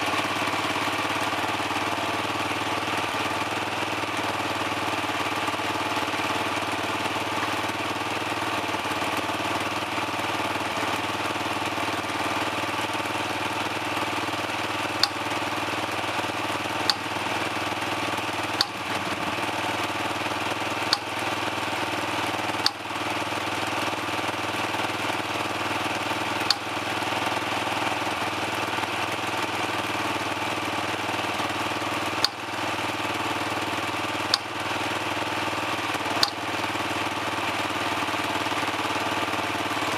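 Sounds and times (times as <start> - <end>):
dirt bike engine idling: 0.0 - 39.9
sharp brief clicks: 15.0 - 15.3.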